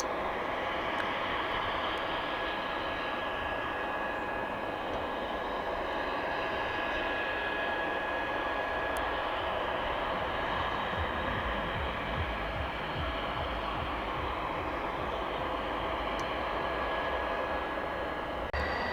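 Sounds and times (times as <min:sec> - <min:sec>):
turbine rushing with high whine: 0:00.0 - 0:18.9
low fluttering rumble: 0:08.9 - 0:18.9.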